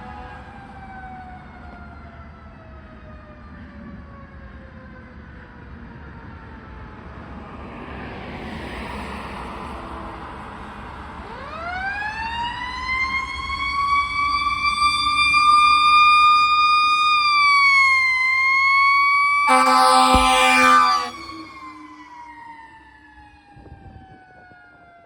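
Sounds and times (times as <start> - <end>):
fire engine siren wailing: 11.4 - 25.0
deep horn blast: 19.4 - 22.1.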